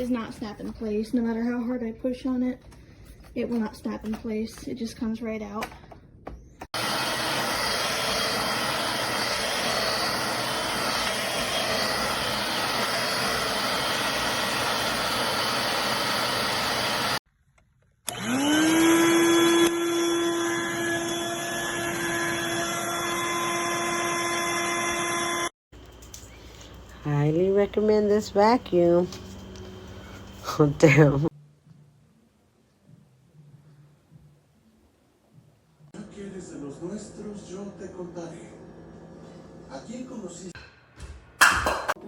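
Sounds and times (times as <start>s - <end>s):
vacuum cleaner running: 6.7s - 17.2s, 18.1s - 31.3s.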